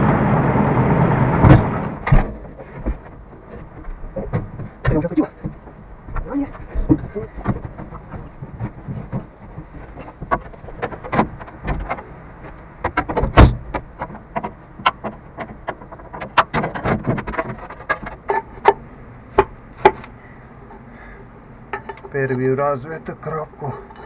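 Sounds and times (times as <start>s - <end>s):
heavy thud: 1.4s - 3.4s.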